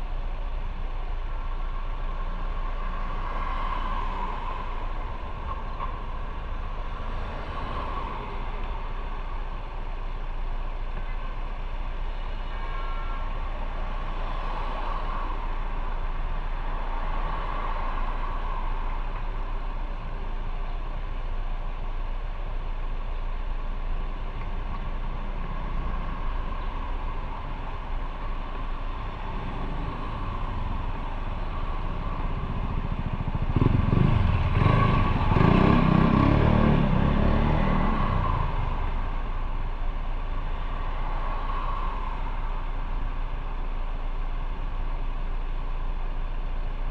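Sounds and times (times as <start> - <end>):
motorcycle engine: 29.3 - 38.9.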